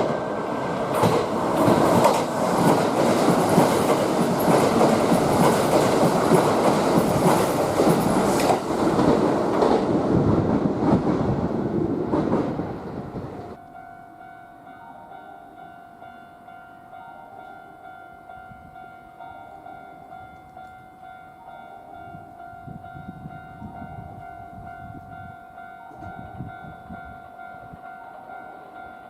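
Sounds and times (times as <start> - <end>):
train wheels clattering: 0.0 - 12.8.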